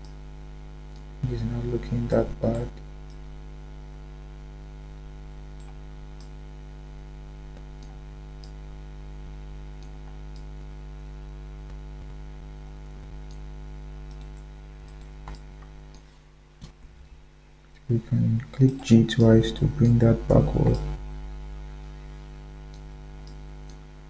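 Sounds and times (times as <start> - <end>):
electrical mains hum: 0.0 - 24.0
faint mouse clicks: 5.6 - 6.4, 7.6 - 8.6, 14.1 - 17.0, 22.7 - 23.8.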